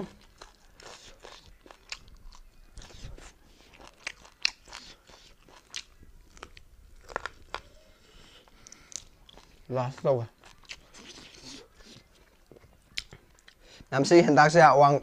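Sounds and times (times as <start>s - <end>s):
person chewing: 0.0s - 13.9s
mouth smacks and clicks: 8.4s - 13.6s.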